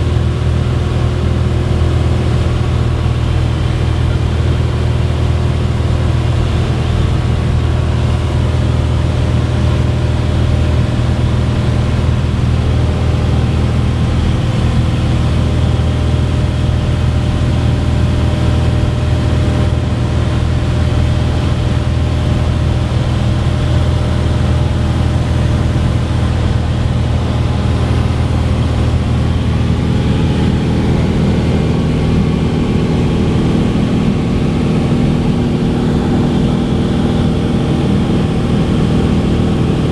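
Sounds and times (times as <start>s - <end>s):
propeller airplane engine drone: 0.0s - 39.9s.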